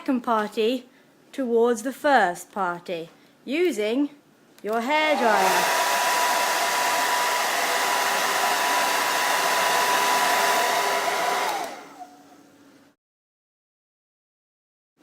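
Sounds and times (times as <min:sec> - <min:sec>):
hair dryer running: 0:04.9 - 0:12.5
hair dryer motor spinning down: 0:05.0 - 0:12.5.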